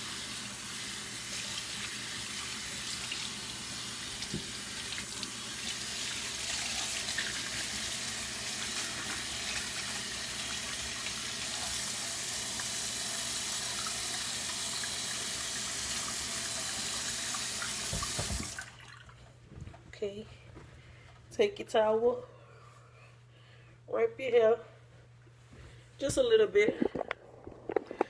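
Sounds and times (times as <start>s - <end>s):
faucet water running into sink: 0.0s - 19.1s.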